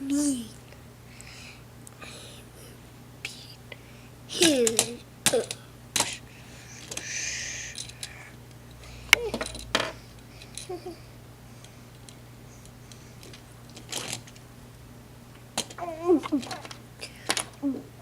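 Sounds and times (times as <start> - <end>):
plastic toy pieces clicking: 4.4 - 6.2, 15.6 - 17.6.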